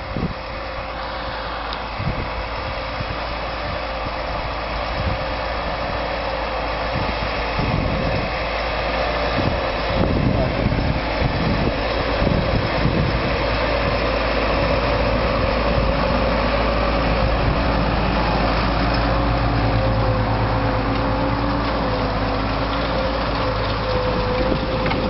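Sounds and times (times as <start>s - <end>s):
tractor engine droning: 0.0s - 25.0s.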